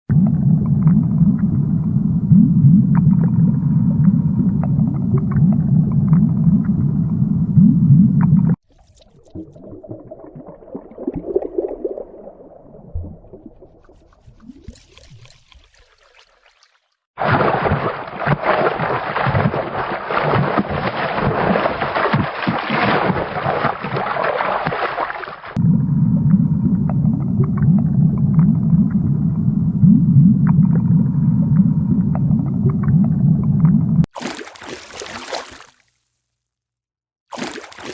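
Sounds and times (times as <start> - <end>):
underwater low rumble: 0.1 - 14.8, 25.6 - 34.1
churning splashing water: 8.6 - 25.6, 34.1 - 35.8, 37.3 - 37.9.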